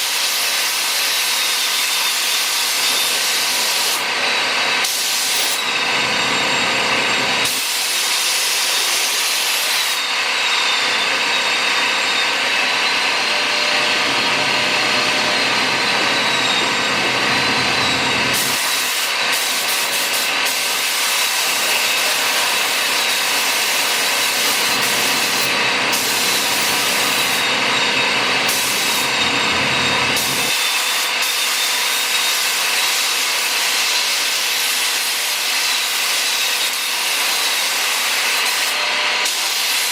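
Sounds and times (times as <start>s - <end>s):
paint spray gun hissing: 18.4s - 27.4s, 28.5s - 29.1s.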